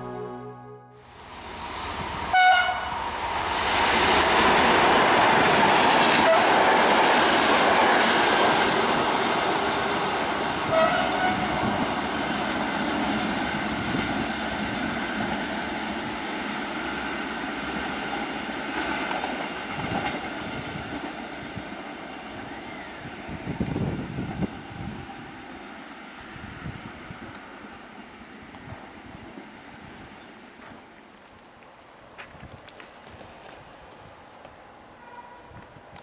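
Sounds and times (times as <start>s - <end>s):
short high tone: 0.0s - 1.2s
diesel locomotive engine: 0.0s - 30.9s
train wheels on rails: 1.2s - 36.0s.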